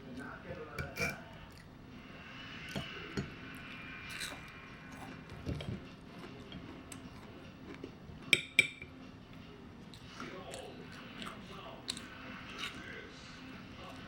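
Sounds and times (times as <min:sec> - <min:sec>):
cutlery clinking against a dish: 0:00.8 - 0:01.3, 0:08.3 - 0:09.0.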